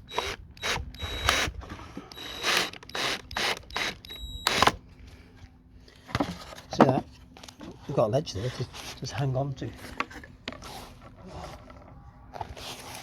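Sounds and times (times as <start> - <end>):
power drill driving screw into wood: 0.0 - 4.8.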